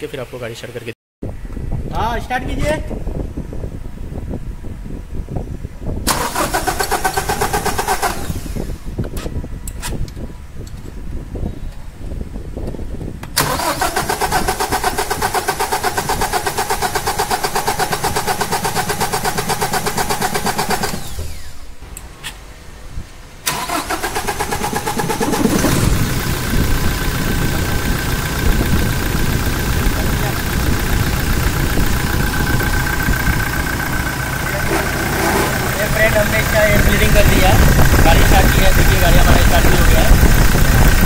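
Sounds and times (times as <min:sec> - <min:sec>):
starter cranking diesel engine: 0:06.0 - 0:09.0, 0:13.3 - 0:21.7, 0:23.4 - 0:41.0
engine starting to catch: 0:06.1 - 0:08.8, 0:13.4 - 0:21.6, 0:23.4 - 0:40.2.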